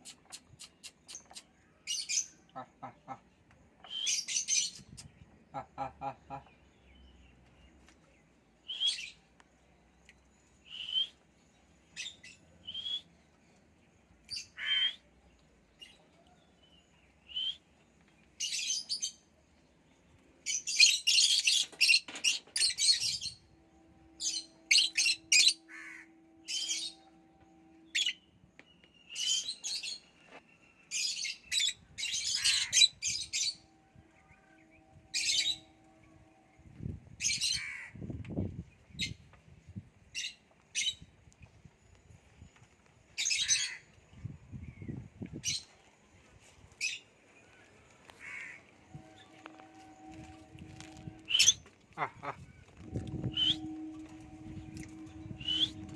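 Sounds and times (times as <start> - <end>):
lovebirds chirping and squawking: 0.0 - 6.6, 20.4 - 23.5, 29.1 - 33.6, 37.2 - 37.9, 43.2 - 45.8, 50.1 - 55.9.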